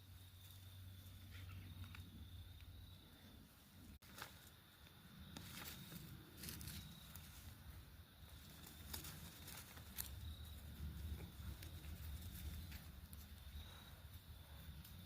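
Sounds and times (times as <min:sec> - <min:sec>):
kittens' paws tapping and scratching: 0:08.4 - 0:13.4.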